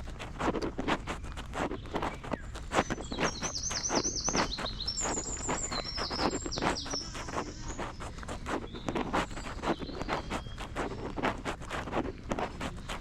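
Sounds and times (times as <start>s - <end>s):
footsteps walking: 0.0s - 13.0s
songbird singing: 1.0s - 13.0s.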